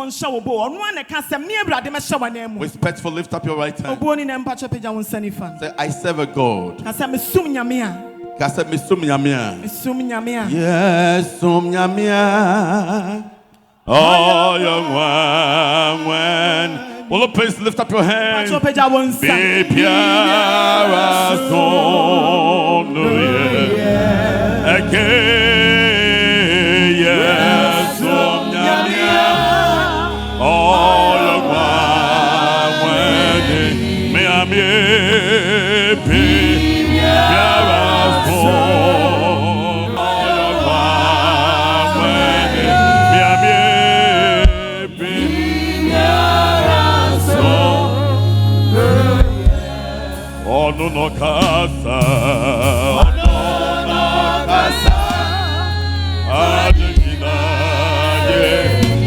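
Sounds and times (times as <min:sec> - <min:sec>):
voices singing with vibrato: 0:03.6 - 0:59.0
instrumental accompaniment with bass: 0:19.8 - 0:59.0.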